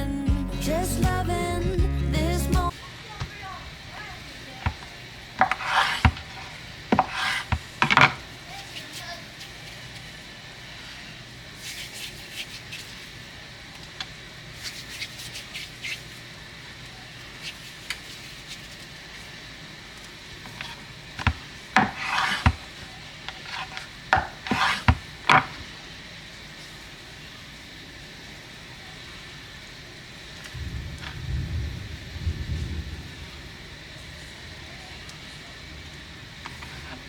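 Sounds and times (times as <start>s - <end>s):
utensils scraping and rubbing: 5.4s - 6.1s, 6.9s - 7.6s, 24.5s - 25.0s.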